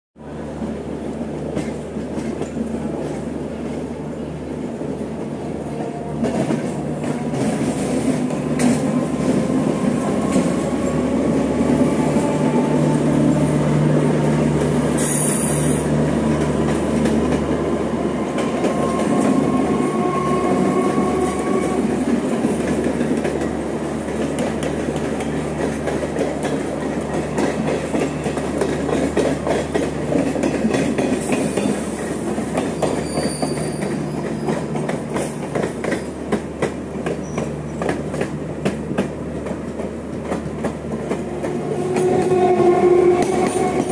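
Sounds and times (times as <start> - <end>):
electric trains rumbling: 0.2 - 43.9
brief high hiss: 15.0 - 15.8.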